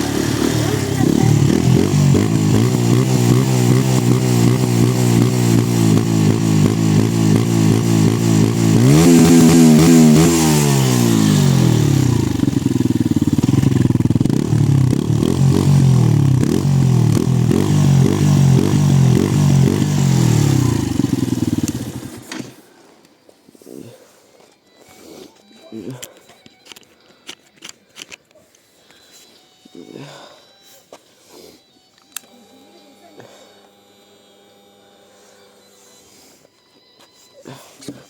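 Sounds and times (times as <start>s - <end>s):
motorcycle engine idling and revving: 0.0s - 22.6s, 33.2s - 35.8s.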